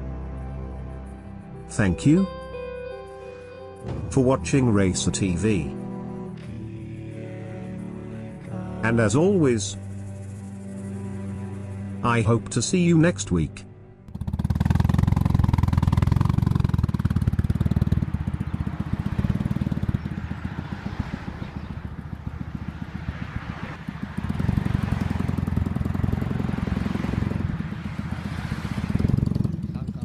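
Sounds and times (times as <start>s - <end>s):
motorcycle engine running: 14.1s - 30.0s.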